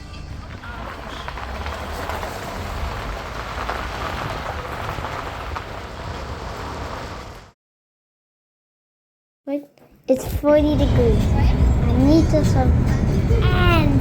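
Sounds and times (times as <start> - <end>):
vehicle driving on road: 0.0 - 7.6, 10.6 - 14.0.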